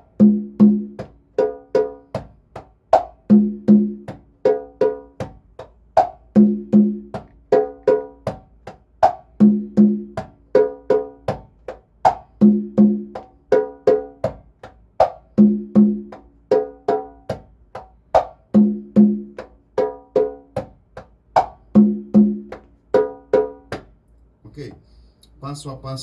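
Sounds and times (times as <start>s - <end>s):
congas played by hand: 0.0s - 24.0s.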